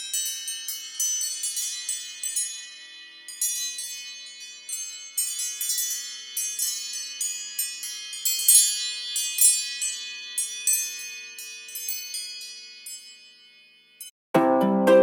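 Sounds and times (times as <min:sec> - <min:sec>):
bell-like ringtone tune: 0:09.4 - 0:15.0.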